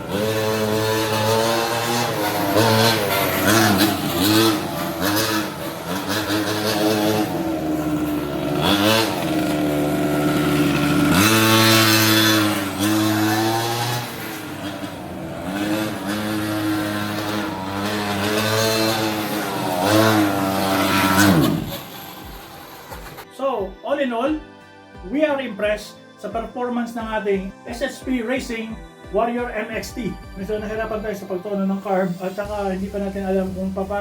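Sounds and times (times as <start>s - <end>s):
small two-stroke engine revving: 0.0s - 23.3s.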